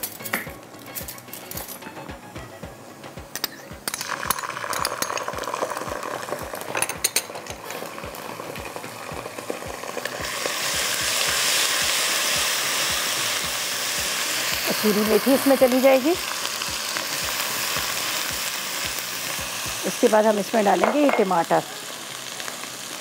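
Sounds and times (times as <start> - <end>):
onions sizzling in hot oil: 3.8 - 23.0
spoon clinking against pot: 6.7 - 7.6.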